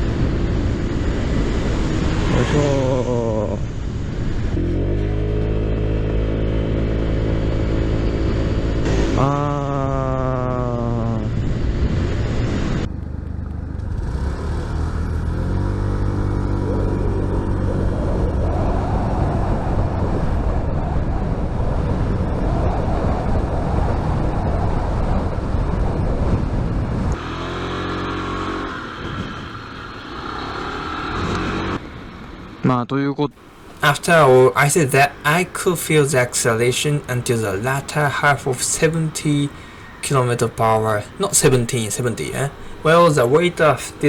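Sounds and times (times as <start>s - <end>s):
wind rush: 0.0s - 12.9s, 16.1s - 27.6s, 28.6s - 32.5s
scooter engine accelerating: 0.0s - 20.4s, 27.1s - 32.6s, 42.4s - 44.0s.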